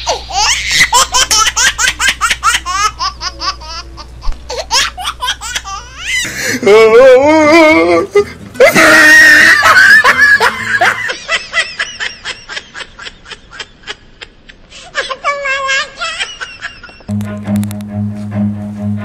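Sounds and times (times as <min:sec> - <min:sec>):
laughter: 0:08.2 - 0:17.1
music: 0:17.1 - 0:19.0.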